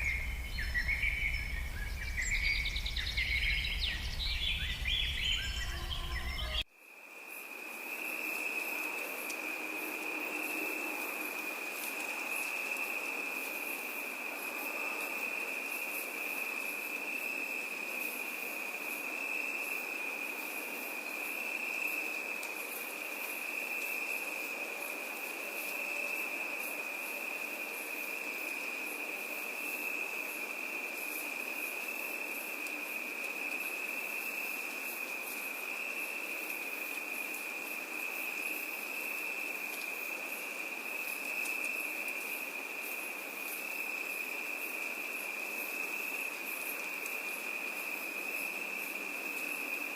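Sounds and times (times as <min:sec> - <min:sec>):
low rumble: 0:00.0 - 0:06.5
birdsong: 0:00.0 - 0:06.6
faint fluttering chirps: 0:00.0 - 0:06.6
background hiss: 0:00.0 - 0:49.9
insect trill: 0:00.0 - 0:49.9.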